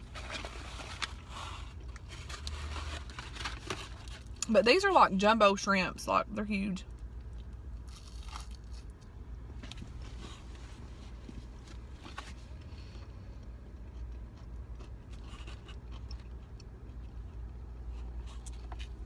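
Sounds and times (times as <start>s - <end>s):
paper box rustling: 0.0s - 4.3s
chewing fried shrimp: 6.9s - 10.5s, 12.5s - 19.0s.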